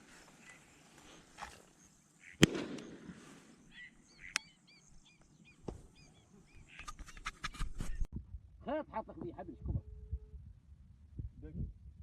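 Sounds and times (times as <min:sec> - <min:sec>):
ducks calling: 0:02.2 - 0:07.4
sharp crack: 0:02.4 - 0:03.4.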